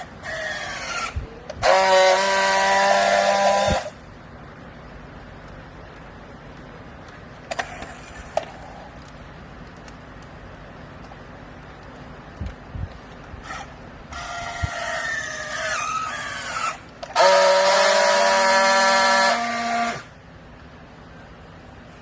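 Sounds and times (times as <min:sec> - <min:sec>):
hydraulic baler whining: 0:00.0 - 0:04.0, 0:13.4 - 0:20.2.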